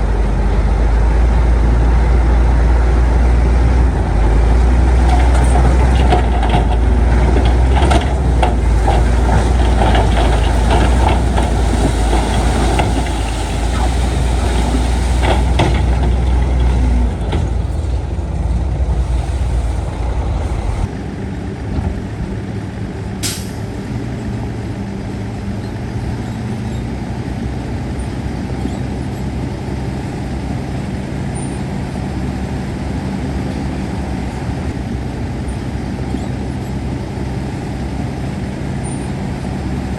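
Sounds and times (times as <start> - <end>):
heavy machinery engine drone: 0.0 - 39.9
metal clanks and knocks: 4.1 - 18.5
short air hiss: 23.2 - 23.7.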